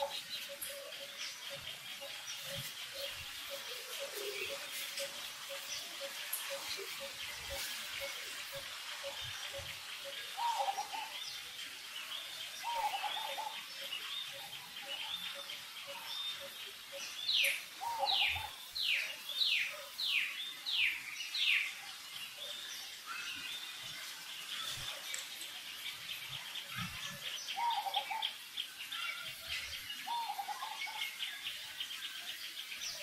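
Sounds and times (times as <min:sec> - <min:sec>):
low wavering bird calls: 0:00.0 - 0:11.5, 0:12.5 - 0:19.8, 0:26.6 - 0:31.2
birds chirping: 0:00.0 - 0:33.0.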